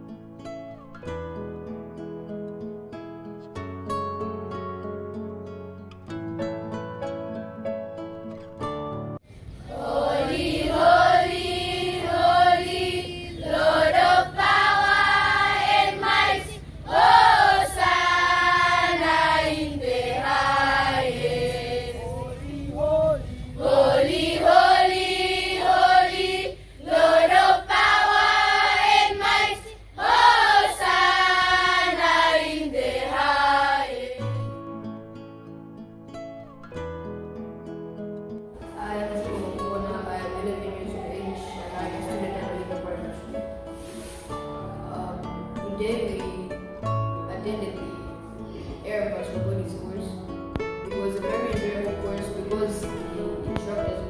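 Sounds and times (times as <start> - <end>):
people singing together: 9.6 - 22.4, 23.5 - 34.5, 38.7 - 44.2.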